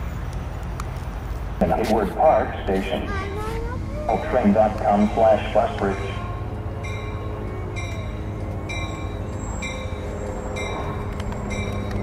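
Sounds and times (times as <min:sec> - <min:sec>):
train warning bell ringing: 0:04.1 - 0:12.0.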